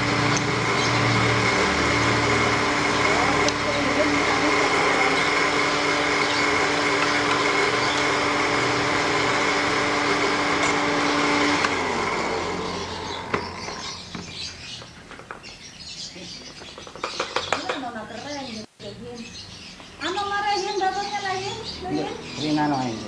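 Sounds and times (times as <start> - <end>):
motor humming and winding down: 0.0 - 15.6.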